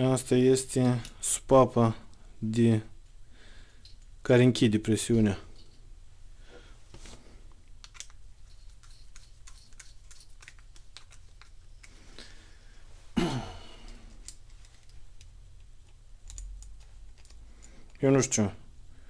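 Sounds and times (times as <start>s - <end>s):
small parts clicking and tapping: 3.7s - 4.2s, 7.6s - 12.0s, 13.8s - 18.1s
person sighing: 13.1s - 14.2s.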